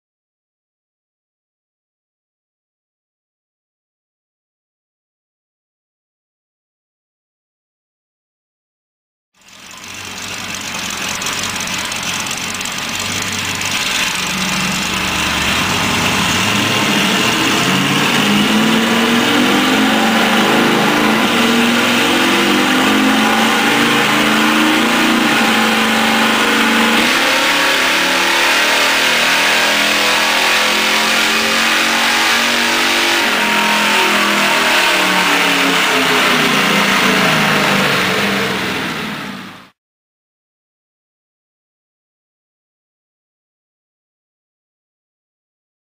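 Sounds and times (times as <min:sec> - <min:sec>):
car engine revving hard: 0:09.5 - 0:39.8.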